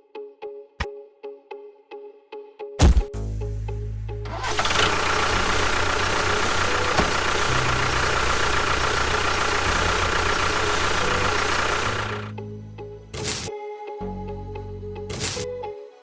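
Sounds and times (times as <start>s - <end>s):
small motor running: 4.3s - 12.3s, 13.2s - 13.5s.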